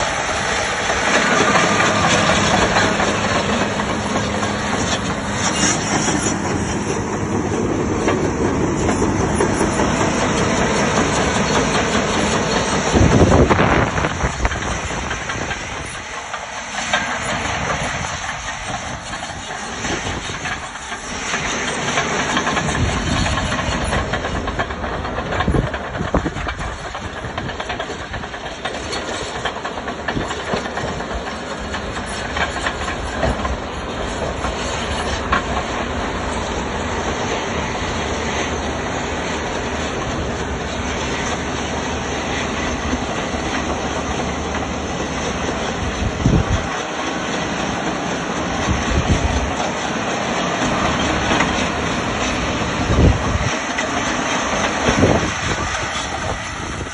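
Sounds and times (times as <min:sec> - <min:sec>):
diesel excavator running: 0:00.0 - 0:56.9.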